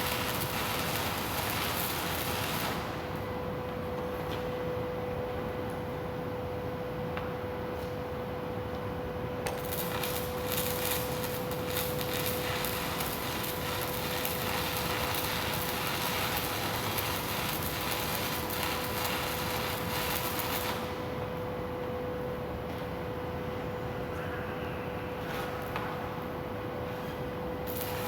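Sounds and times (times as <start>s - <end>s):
arc welding crackling: 0.0s - 3.2s, 9.4s - 21.4s, 27.6s - 28.0s
steady hum: 8.2s - 28.0s.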